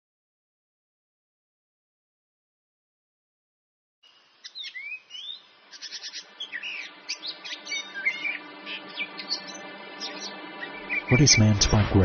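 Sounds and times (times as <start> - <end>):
faint steady tones: 4.0 - 12.0
birds chirping and singing: 4.1 - 12.0.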